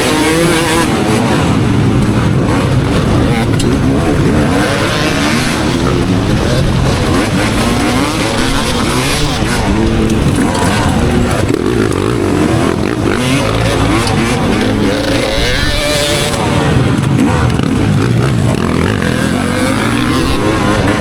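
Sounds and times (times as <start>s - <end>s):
motocross bike engine revving: 0.0s - 21.0s
steady rushing noise: 0.0s - 21.0s.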